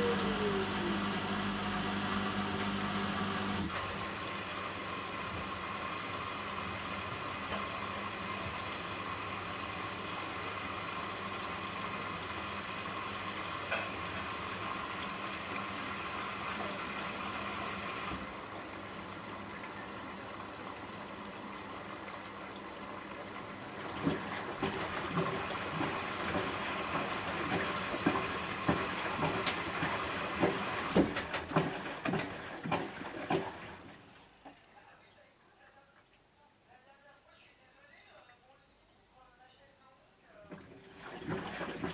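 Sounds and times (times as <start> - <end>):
faint hum: 0.0 - 1.8
water running into washing machine: 0.0 - 34.4, 40.5 - 41.9
wet laundry knocking in drum: 23.9 - 33.7.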